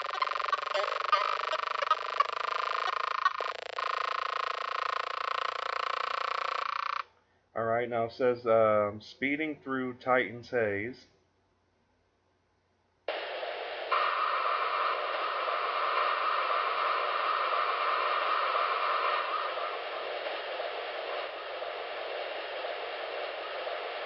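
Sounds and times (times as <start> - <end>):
high bright hiss: 0.0 - 7.0, 13.1 - 24.0
rushing static hiss: 0.0 - 7.0, 13.1 - 24.0.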